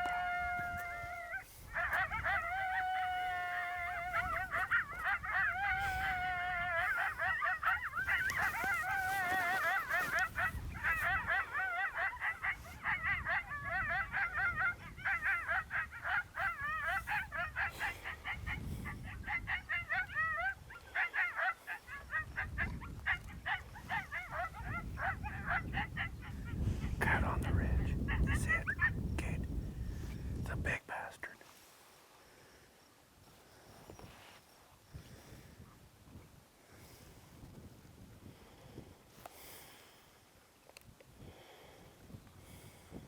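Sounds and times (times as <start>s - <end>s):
coyote howling: 0.0s - 29.2s
coyotes yipping and yelping: 0.0s - 30.2s, 33.2s - 35.9s.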